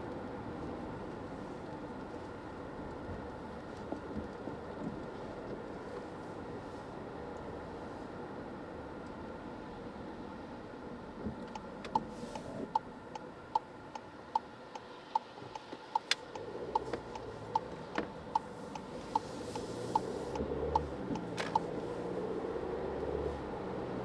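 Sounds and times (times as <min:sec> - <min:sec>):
low engine hum: 0:00.0 - 0:24.0
road noise: 0:00.0 - 0:24.0
turn signal ticking: 0:11.2 - 0:24.0.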